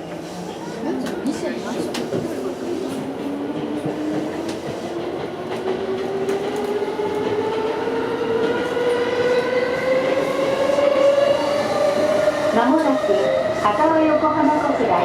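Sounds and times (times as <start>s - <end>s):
rumble of train wheels: 0.9s - 15.0s
faint clicks from rails: 1.0s - 7.4s.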